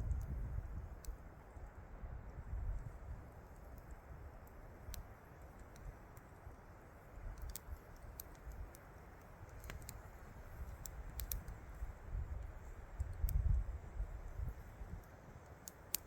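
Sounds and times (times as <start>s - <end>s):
wind buffeting microphone: 0.0s - 4.9s, 9.6s - 15.4s
small sharp crackles: 2.7s - 16.0s.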